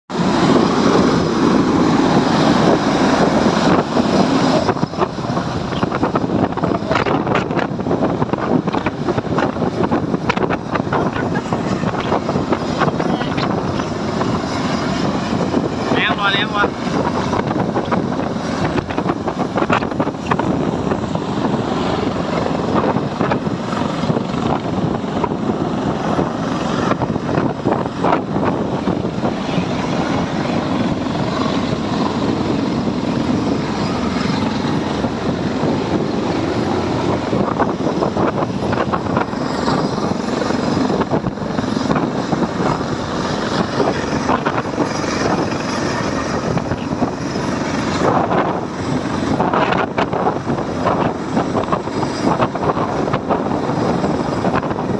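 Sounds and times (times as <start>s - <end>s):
helicopter running: 0.1s - 54.9s
wind buffeting microphone: 0.1s - 54.9s.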